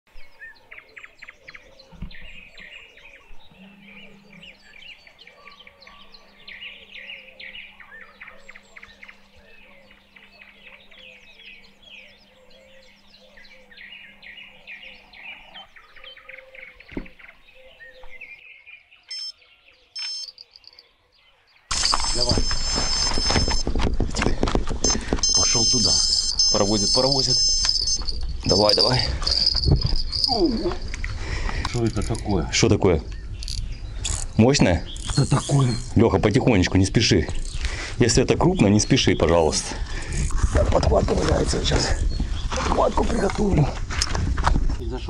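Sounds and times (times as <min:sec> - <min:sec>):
songbirds chirping and singing: 0:00.1 - 0:45.0
thump: 0:16.9 - 0:17.1
steady low hum: 0:21.7 - 0:36.0.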